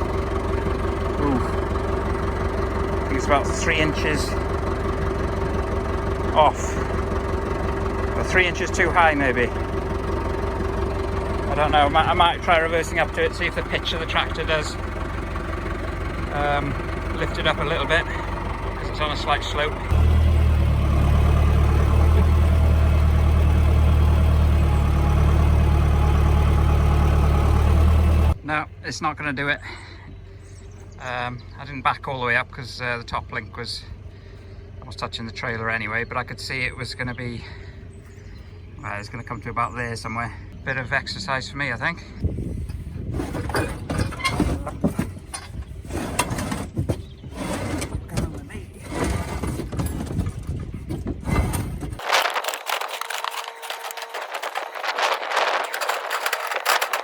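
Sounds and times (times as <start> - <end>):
tractor diesel engine droning: 0.0 - 57.0
metal scraping and clunking: 42.6 - 57.0.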